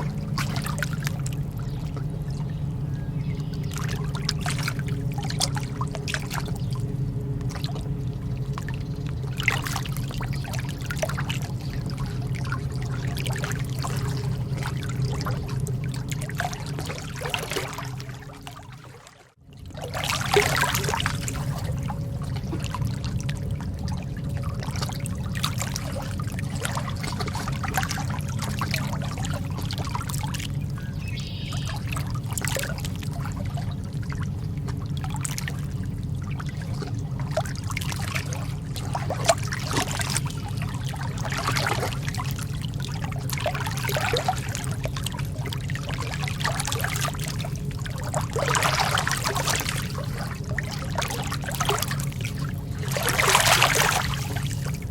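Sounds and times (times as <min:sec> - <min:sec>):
small splashes: 0:00.0 - 0:02.6, 0:03.4 - 0:54.9
lake water lapping: 0:00.0 - 0:54.9
low rumble: 0:00.0 - 0:54.9.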